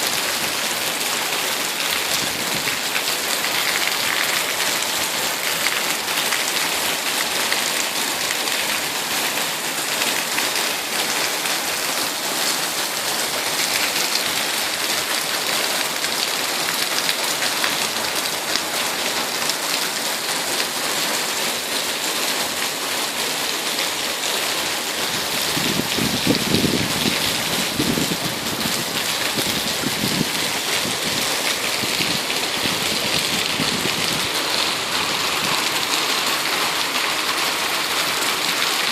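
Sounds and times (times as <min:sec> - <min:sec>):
heavy rain falling: 0:00.0 - 0:38.9
thunder rumbling: 0:25.5 - 0:35.9.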